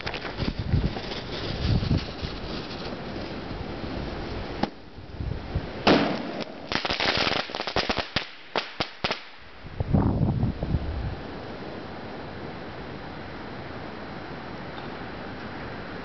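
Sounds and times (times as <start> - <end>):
firecrackers popping and banging: 0.0 - 3.0, 5.8 - 9.4.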